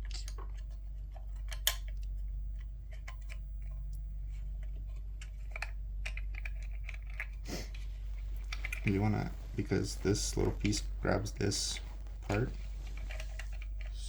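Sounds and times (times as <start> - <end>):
plastic parts clicking: 0.0 - 3.8
steady low hum: 0.0 - 14.0.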